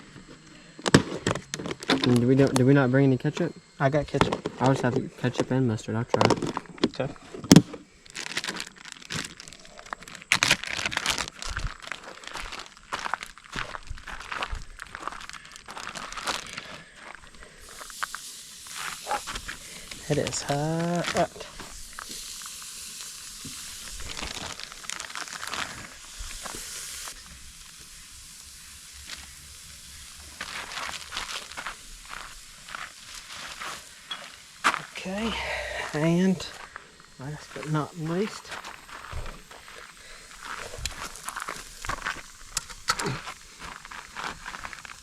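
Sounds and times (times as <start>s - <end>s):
crackles and pops: 0.0s - 2.7s, 3.3s - 45.0s
food packaging crinkling: 6.2s - 27.2s, 30.2s - 34.9s, 36.5s - 45.0s
patties sizzling on a grill: 6.5s - 45.0s.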